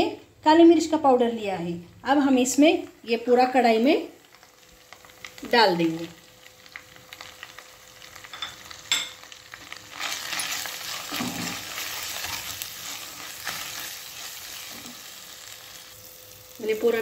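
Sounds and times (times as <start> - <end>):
paste sizzling in oil: 4.2 - 17.0.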